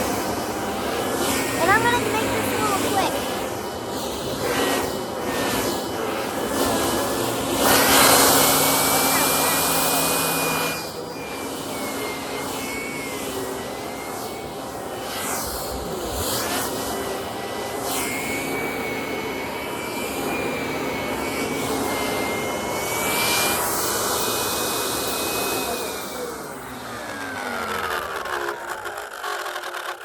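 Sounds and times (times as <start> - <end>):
brush working over fabric: 0.0 - 26.1
vacuum cleaner whining: 0.0 - 30.0.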